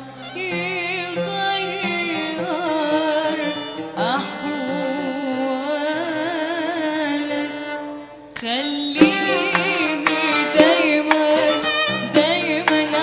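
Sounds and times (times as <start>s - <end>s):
live pop music with band: 9.0s - 13.0s.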